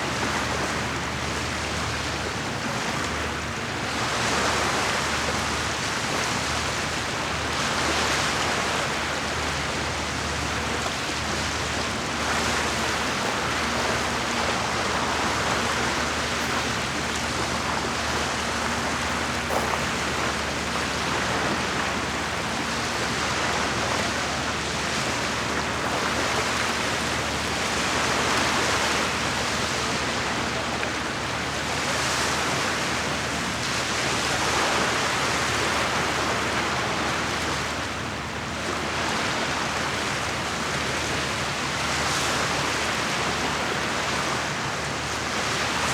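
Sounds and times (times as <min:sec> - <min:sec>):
waves lapping against shore: 0:00.0 - 0:45.9.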